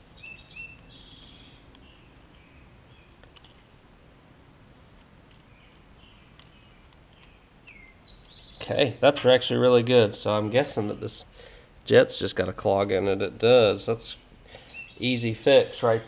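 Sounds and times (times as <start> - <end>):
faint bird chirps: 0.0 - 3.6, 5.5 - 8.8, 14.1 - 15.1
low steady hum: 0.0 - 16.0.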